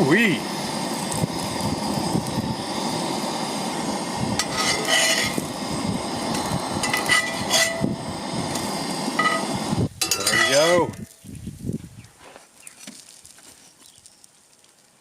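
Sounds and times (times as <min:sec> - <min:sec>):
cooking hiss: 0:00.0 - 0:12.1
metal utensil scraping pan: 0:04.4 - 0:05.4, 0:06.8 - 0:07.9, 0:09.2 - 0:10.8.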